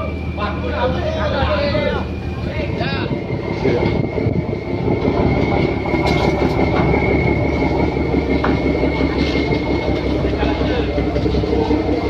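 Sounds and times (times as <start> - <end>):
boat engine rumbling with whine: 0.0 - 12.0.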